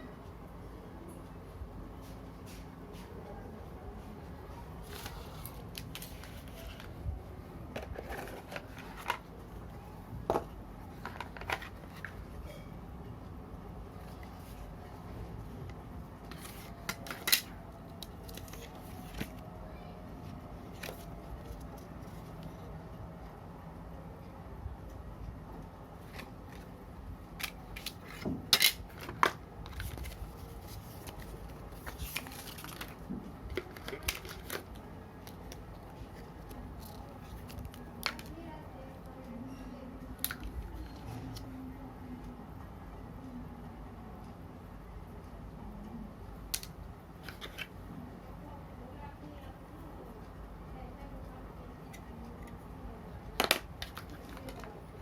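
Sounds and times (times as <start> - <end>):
hands handling phone packaging: 4.8 - 7.0, 7.7 - 9.4, 10.2 - 12.4, 16.2 - 19.5, 20.7 - 22.5, 26.0 - 38.4, 53.4 - 54.8
phone box being handled: 7.7 - 9.3, 10.3 - 12.3, 53.4 - 54.8.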